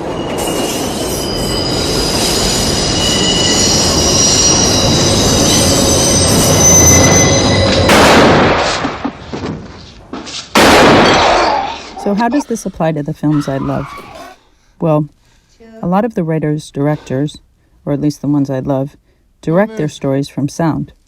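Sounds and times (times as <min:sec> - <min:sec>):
train wheels screeching on rails: 0:00.0 - 0:07.9
loud burst: 0:07.9 - 0:09.0, 0:10.6 - 0:12.0.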